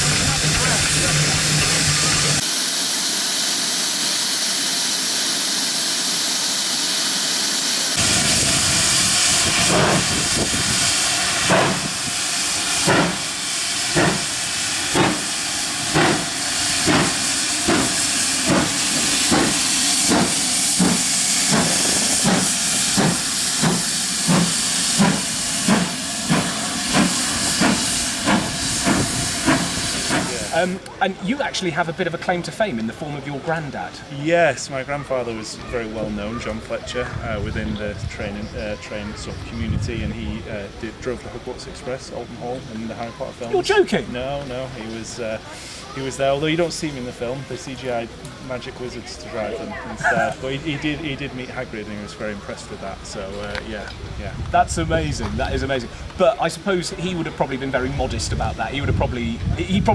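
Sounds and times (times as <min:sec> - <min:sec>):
steam hissing: 0:00.0 - 0:30.9, 0:39.8 - 0:49.2, 0:54.5 - 0:59.9
steam locomotive exhaust chuffs: 0:00.0 - 0:30.9.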